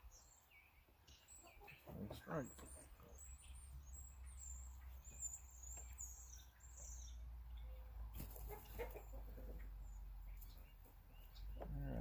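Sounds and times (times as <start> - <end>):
faint birdsong chirps: 0.0 - 12.0
chicken clucking: 1.1 - 3.6, 7.5 - 12.0.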